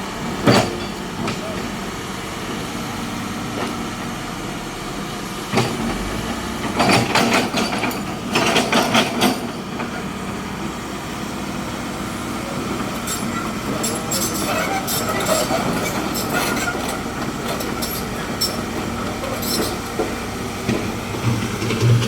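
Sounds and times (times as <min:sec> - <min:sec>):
heavy vehicle engine running: 0:00.0 - 0:22.0
metallic clattering and rattling: 0:20.7 - 0:22.0.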